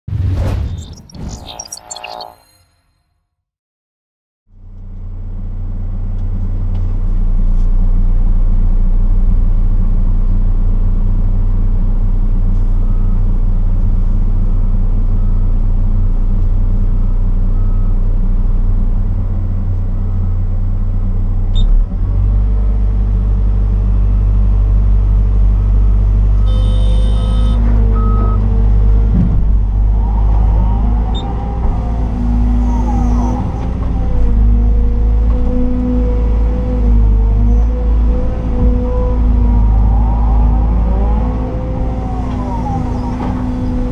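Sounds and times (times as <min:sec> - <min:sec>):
reversing alarm beeping: 0:00.7 - 0:02.7, 0:25.6 - 0:28.4
excavator diesel engine running: 0:23.7 - 0:36.7
hydraulic whines: 0:26.4 - 0:28.4.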